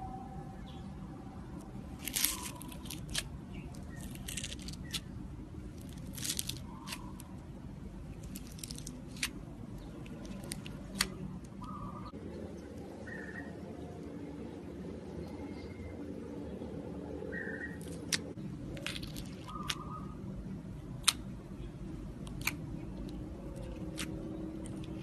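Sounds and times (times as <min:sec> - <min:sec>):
steady low hum: 0:00.0 - 0:25.0
slime crackling and popping: 0:02.0 - 0:05.1, 0:05.8 - 0:07.3, 0:08.2 - 0:11.6.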